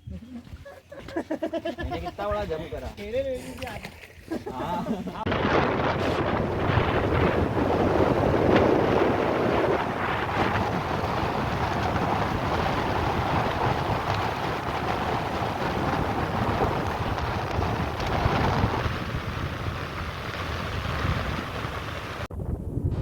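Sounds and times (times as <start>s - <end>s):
wind buffeting microphone: 5.2s - 23.0s
motorboat running fast: 5.6s - 22.3s.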